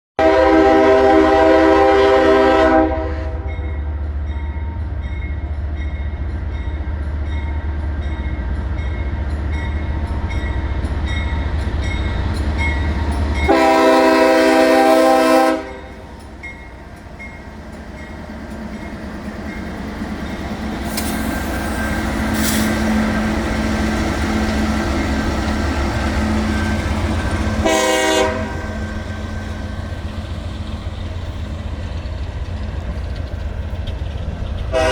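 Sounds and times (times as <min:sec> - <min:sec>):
locomotive horn blasts: 0:00.2 - 0:03.7, 0:13.4 - 0:16.0, 0:26.5 - 0:29.1.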